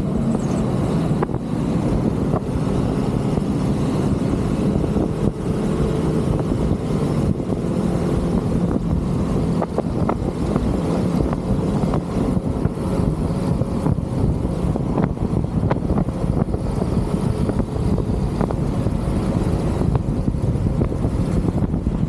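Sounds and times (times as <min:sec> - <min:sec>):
motorcycle engine hum: 0:00.0 - 0:22.0
wind and road noise: 0:00.0 - 0:22.0.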